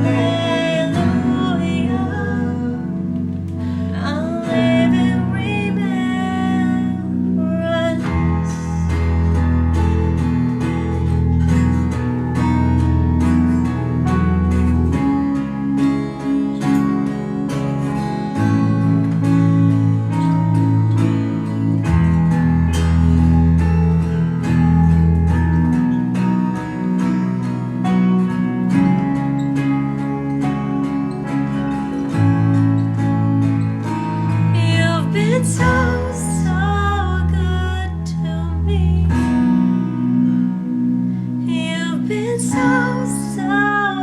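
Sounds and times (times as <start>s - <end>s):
person singing: 0.0s - 9.2s, 34.5s - 39.6s, 41.4s - 44.0s
bass line: 0.0s - 44.0s
strummed acoustic guitar: 0.0s - 44.0s.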